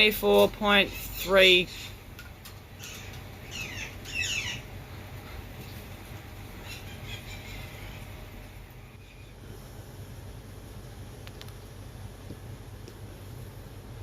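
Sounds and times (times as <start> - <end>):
bird squawking: 2.8 - 5.0, 6.6 - 8.2.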